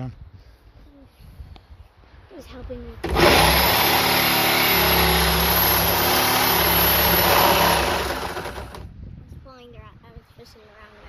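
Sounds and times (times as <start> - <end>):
power cutting tool cutting steel: 3.0 - 8.8.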